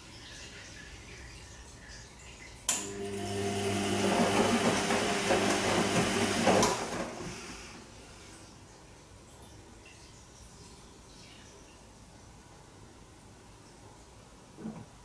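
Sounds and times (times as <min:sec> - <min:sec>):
drain pump humming: 0:02.7 - 0:08.6.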